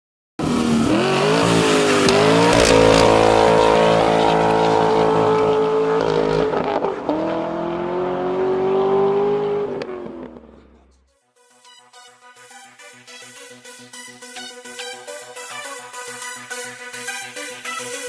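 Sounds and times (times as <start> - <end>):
vehicle engine accelerating: 0.4 - 10.9.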